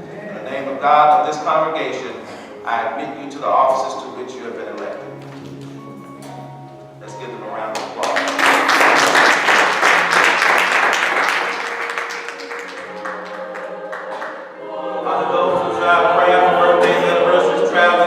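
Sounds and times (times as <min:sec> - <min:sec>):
sustained music: 0:00.0 - 0:18.0
congregation applauding: 0:07.7 - 0:14.5
singing: 0:11.7 - 0:18.0.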